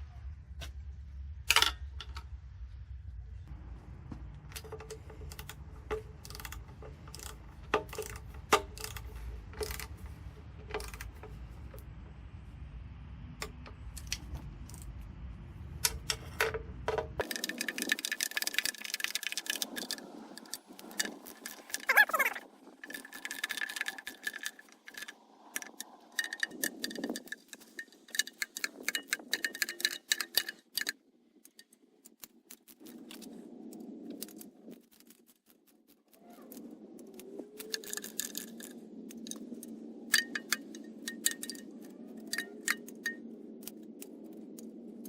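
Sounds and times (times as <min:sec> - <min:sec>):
steady low hum: 0:00.0 - 0:18.7.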